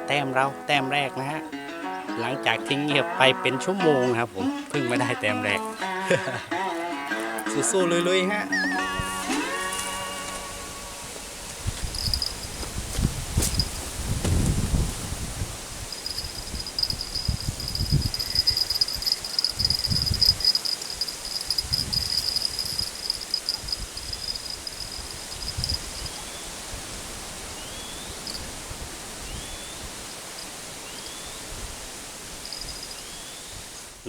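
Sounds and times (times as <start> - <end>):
insect trilling: 11.1 - 13.8, 15.6 - 26.5, 27.7 - 28.5, 32.2 - 33.5
rustling and bumping: 11.5 - 15.1.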